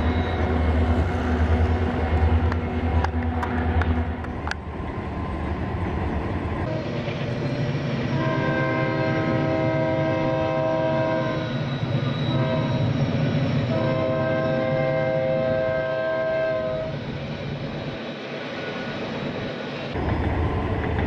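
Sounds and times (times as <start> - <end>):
freight train rumbling: 0.0 - 21.0
locomotive horn chord: 8.2 - 11.4, 13.7 - 16.9.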